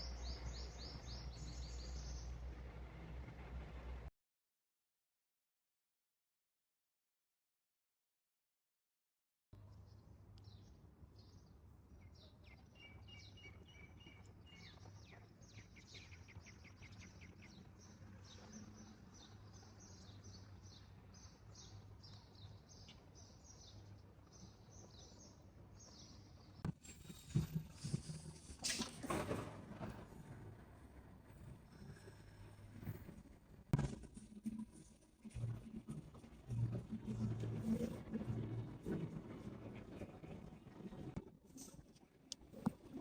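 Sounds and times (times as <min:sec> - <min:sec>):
small birds chirping: 0:00.0 - 0:02.5, 0:09.7 - 0:26.6.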